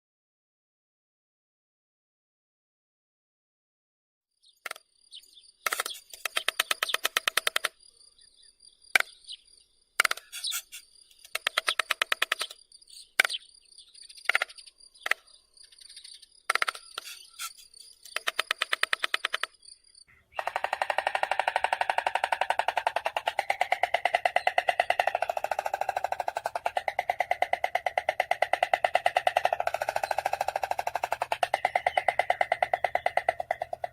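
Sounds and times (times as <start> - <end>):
stork clattering its bill: 5.6 - 7.8, 10.0 - 12.6, 16.5 - 19.6, 20.4 - 33.9.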